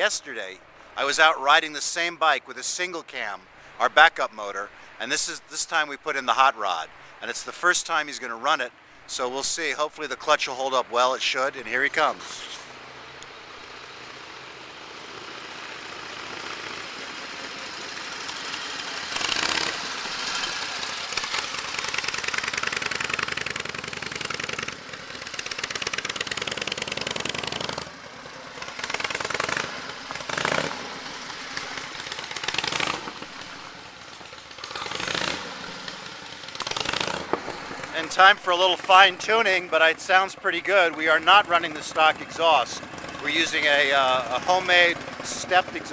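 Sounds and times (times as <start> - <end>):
motorcycle engine passing: 12.4 - 45.9.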